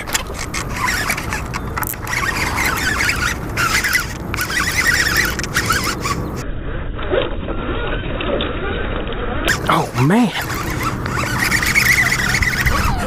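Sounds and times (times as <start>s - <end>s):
birds chirping: 0.4s - 6.4s, 9.5s - 13.0s.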